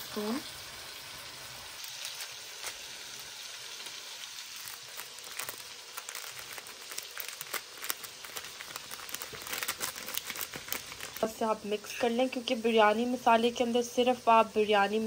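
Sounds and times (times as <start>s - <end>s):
onions frying in a wok: 0.0s - 15.0s
crackles and clicks: 1.8s - 12.1s.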